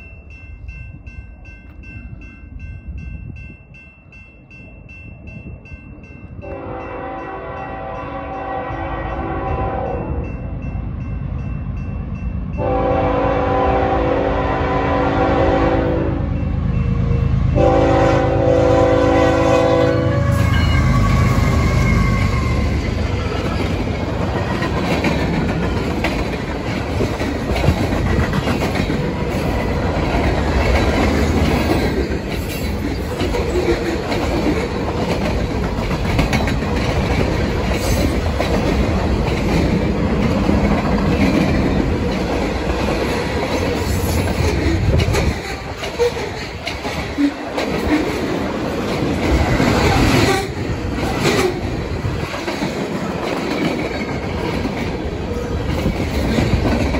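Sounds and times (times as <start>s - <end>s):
freight train rumbling: 0.0s - 56.9s
wheels clacking over rail joints: 21.8s - 56.9s.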